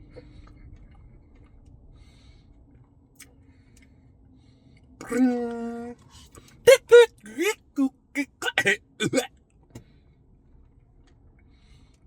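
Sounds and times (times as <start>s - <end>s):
soft chewing: 0.0s - 4.0s.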